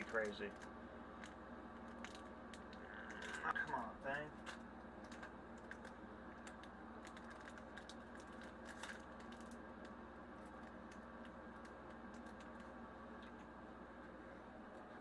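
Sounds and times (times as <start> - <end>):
low steady hum: 0.0 - 15.0
foil wrapper crinkling: 4.3 - 13.3.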